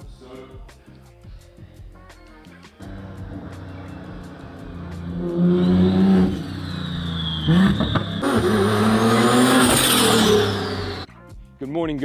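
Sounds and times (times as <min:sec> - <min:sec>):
car engine revving: 0:02.8 - 0:11.1.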